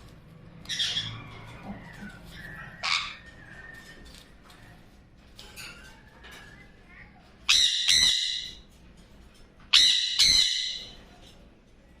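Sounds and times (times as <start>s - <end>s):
parrot squawking: 0.6s - 4.8s, 7.4s - 8.6s, 9.7s - 11.0s.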